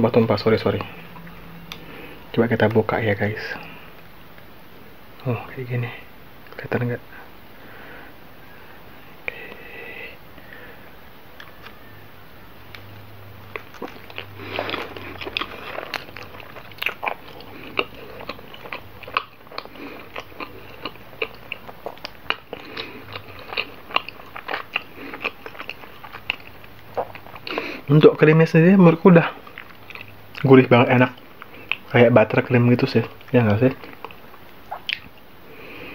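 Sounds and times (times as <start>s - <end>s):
person chewing with mouth clicks: 0.8s - 1.9s, 13.5s - 27.9s, 29.3s - 30.5s, 31.1s - 31.9s, 33.0s - 35.3s.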